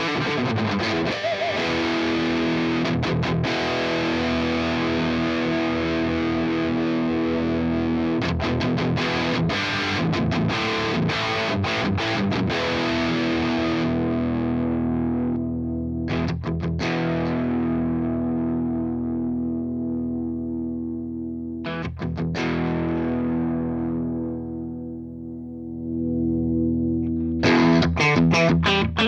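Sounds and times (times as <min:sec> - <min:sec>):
overdriven electric guitar: 0:00.0 - 0:29.0.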